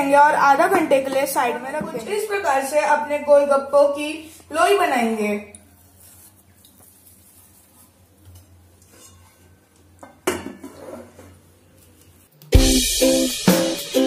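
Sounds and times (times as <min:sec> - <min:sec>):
faint handling of dough and bowl: 0:05.6 - 0:12.3
kitchenware clattering: 0:08.9 - 0:11.4
music with drums: 0:12.5 - 0:14.0.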